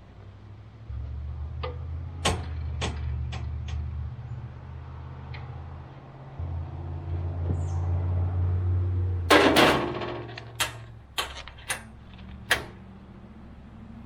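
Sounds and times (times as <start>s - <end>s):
sharp metal knocks: 1.7s - 3.8s, 9.3s - 12.8s
loud metal clatter: 9.3s - 11.9s.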